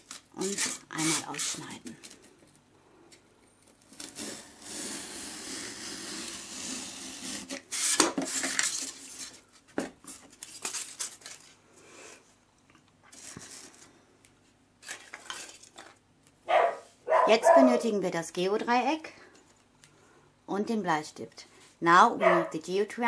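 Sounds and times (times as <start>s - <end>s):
knife cutting styrofoam: 0.0s - 1.8s, 3.9s - 9.4s.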